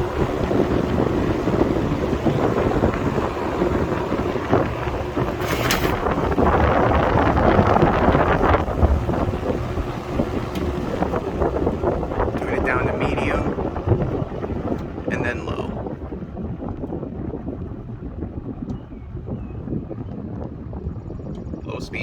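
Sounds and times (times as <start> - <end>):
box fan wind noise: 0.0 - 22.0
brief rustle: 5.4 - 6.0.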